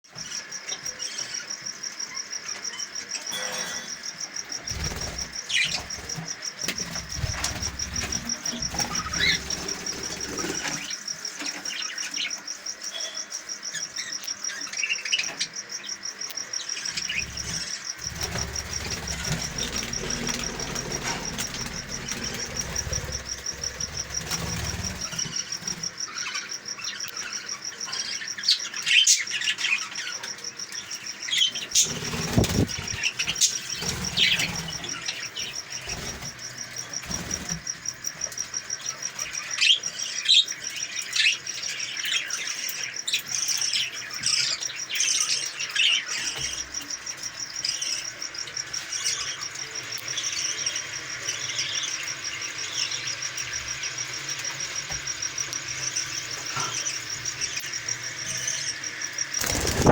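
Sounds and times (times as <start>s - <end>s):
budgerigars chirping: 8.7s - 9.5s.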